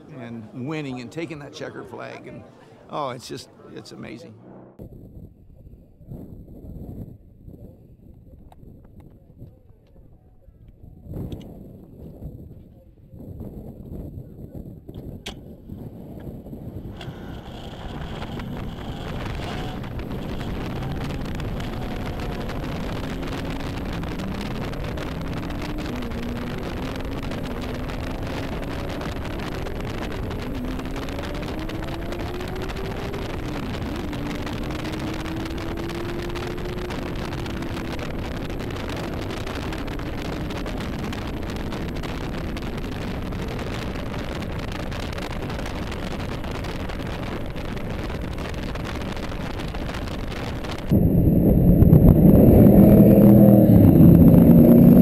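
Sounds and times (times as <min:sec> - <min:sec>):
wind rushing: 0:13.3 - 0:55.0
car engine accelerating hard: 0:16.4 - 0:55.0.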